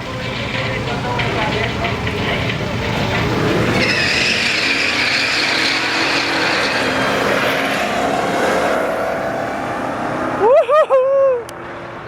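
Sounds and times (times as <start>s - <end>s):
racing car engines at full throttle: 0.0s - 12.0s
steady high squeal: 0.3s - 8.1s.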